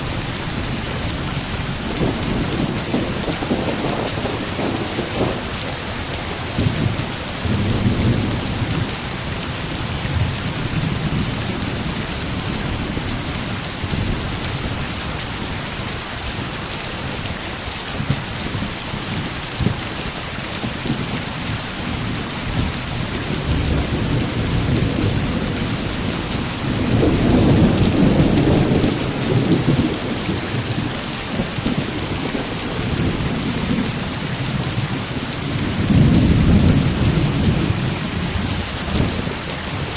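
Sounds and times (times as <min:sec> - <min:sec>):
heavy rain: 0:00.0 - 0:39.9
rolling thunder: 0:00.6 - 0:09.2, 0:20.8 - 0:39.4.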